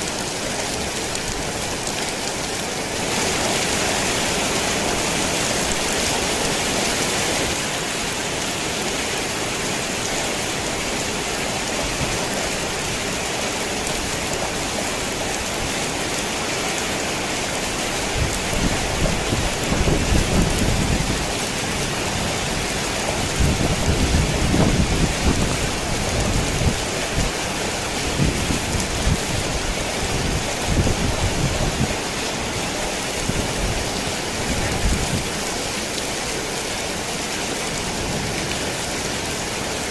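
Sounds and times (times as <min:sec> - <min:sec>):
heavy rain on a tin roof: 0:00.0 - 0:39.9
low thunder rumbling: 0:18.2 - 0:26.9.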